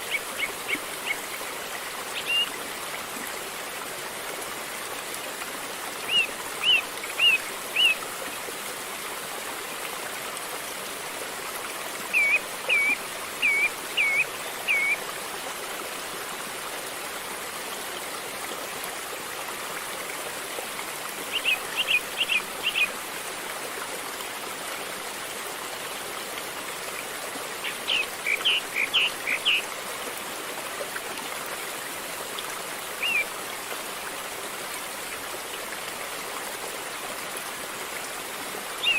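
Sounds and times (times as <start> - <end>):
river water flowing: 0.0 - 38.9
bird chirping: 12.1 - 15.0, 27.6 - 29.6.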